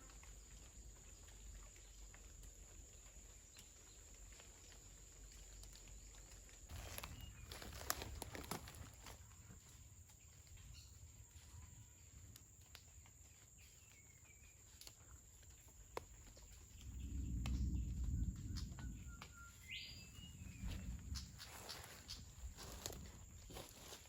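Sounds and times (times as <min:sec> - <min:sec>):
bird chirp: 0:12.9 - 0:22.8
low rumble: 0:16.8 - 0:23.4.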